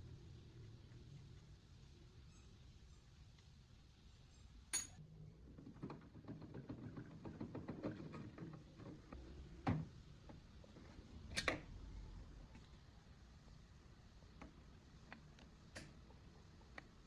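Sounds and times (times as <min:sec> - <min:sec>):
metallic clink: 0:04.7 - 0:05.0.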